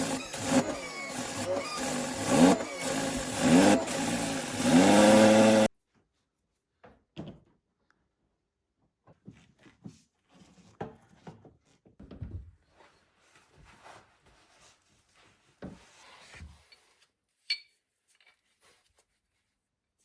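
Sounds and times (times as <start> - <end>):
car engine revving: 0.0 - 5.7.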